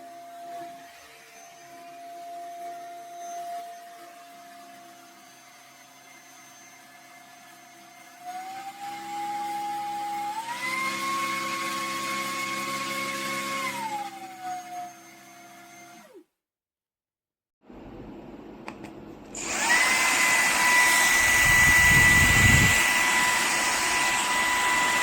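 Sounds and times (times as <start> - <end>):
electric fan motor whining: 19.4 - 25.0
rushing air: 20.6 - 24.5.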